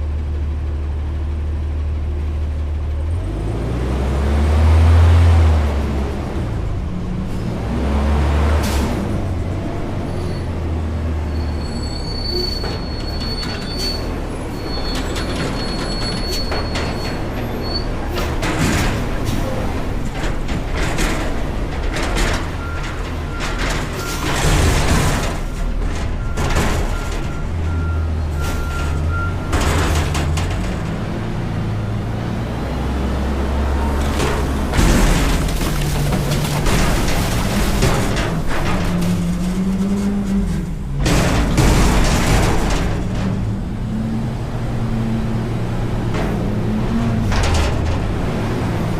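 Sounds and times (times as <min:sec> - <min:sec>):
diesel engine rumbling: 0:00.0 - 0:48.9
high metallic squeal: 0:11.2 - 0:17.9
metal knocks and clanks: 0:12.2 - 0:32.2, 0:33.2 - 0:48.9
reversing alarm beeps: 0:26.2 - 0:29.6.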